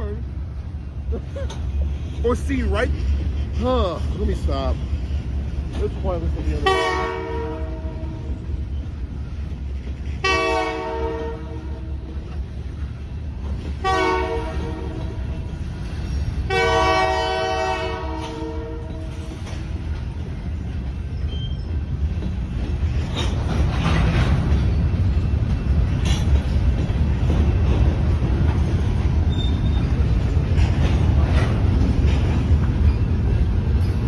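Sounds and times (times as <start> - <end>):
freight train rumbling: 0.0 - 34.0
locomotive air horn blasts: 6.6 - 8.3, 10.2 - 12.0, 13.8 - 15.2, 16.5 - 19.2.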